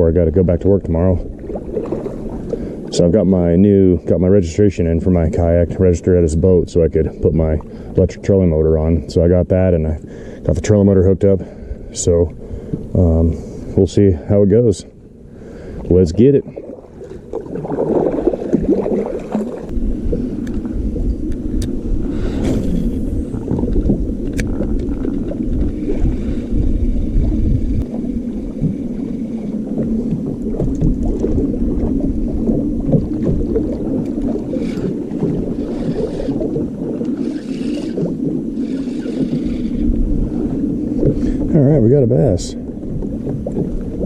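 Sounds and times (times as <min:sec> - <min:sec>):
electric motor humming: 0:34.5 - 0:39.9.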